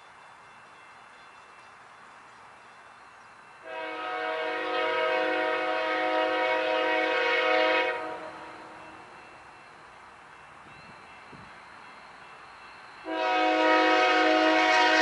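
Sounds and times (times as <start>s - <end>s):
locomotive air horn blast: 3.6s - 8.8s, 13.0s - 15.0s.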